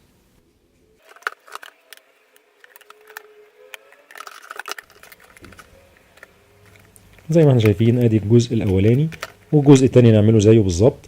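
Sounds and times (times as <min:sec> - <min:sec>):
faint wavering squeak: 0:01.6 - 0:07.4.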